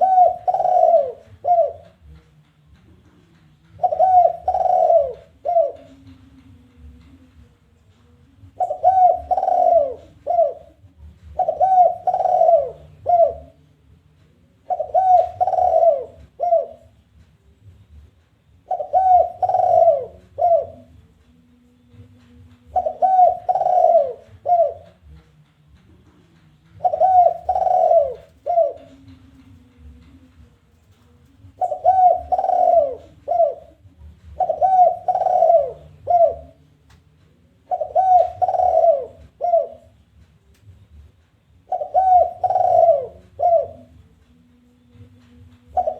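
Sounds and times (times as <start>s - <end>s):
dove cooing: 0.0s - 2.1s, 3.7s - 7.2s, 8.4s - 13.7s, 14.6s - 17.0s, 18.6s - 21.0s, 22.6s - 25.2s, 26.7s - 40.0s, 41.6s - 44.1s, 44.9s - 45.9s.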